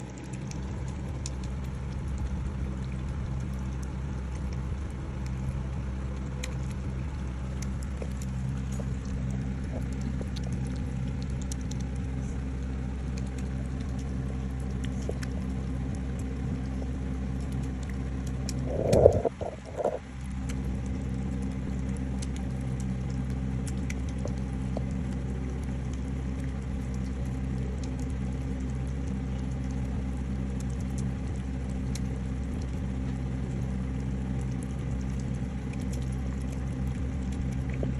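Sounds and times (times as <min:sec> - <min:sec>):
cat purring: 0:18.5 - 0:20.1.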